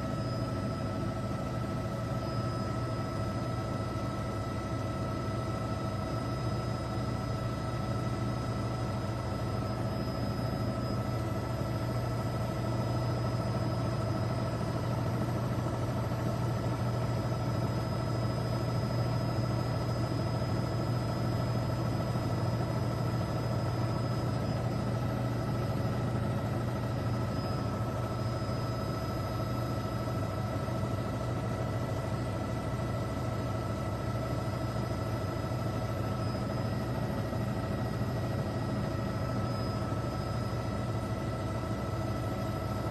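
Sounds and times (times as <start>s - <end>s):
aircraft engines droning: 0.0s - 32.8s, 35.1s - 42.9s
thin whining tones: 34.1s - 42.7s.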